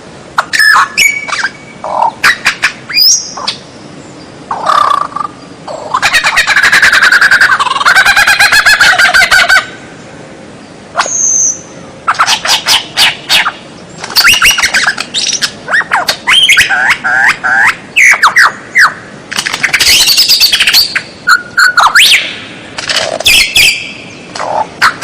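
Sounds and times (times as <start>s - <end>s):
songbird singing: 0.4s - 25.0s.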